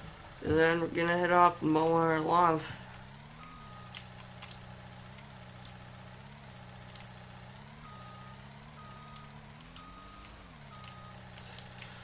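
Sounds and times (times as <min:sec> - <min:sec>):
vehicle engine running: 0:00.0 - 0:12.0
short electronic beeps: 0:03.4 - 0:04.1, 0:07.8 - 0:11.3
sharp clicks: 0:03.4 - 0:05.8, 0:06.8 - 0:07.2, 0:09.0 - 0:12.0.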